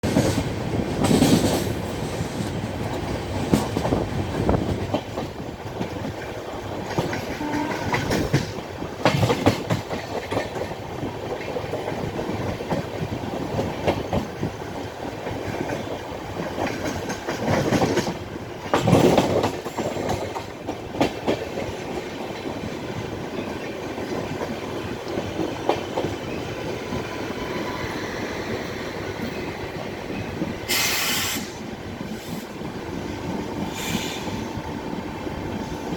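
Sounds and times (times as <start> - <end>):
train clanking: 0.0 - 35.9
train wheels clattering: 0.0 - 35.9
high hiss or squeal: 30.7 - 31.5.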